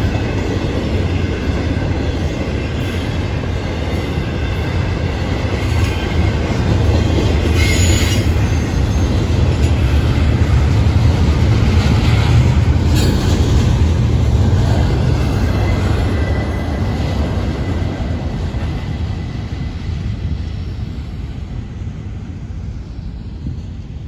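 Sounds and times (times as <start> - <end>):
freight cars rumbling on rails: 0.0 - 24.0
wheel squeals: 7.4 - 9.2.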